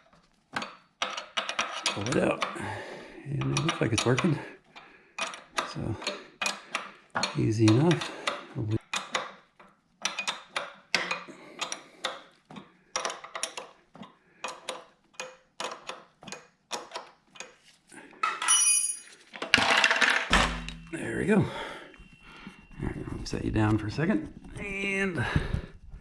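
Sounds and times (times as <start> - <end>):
ringing metal clink: 18.3 - 19.2, 20.3 - 21.2.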